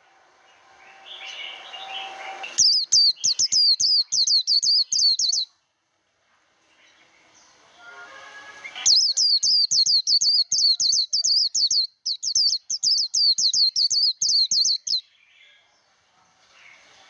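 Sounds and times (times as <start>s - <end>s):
bird singing fast high notes: 0.5s - 5.5s, 7.7s - 15.0s.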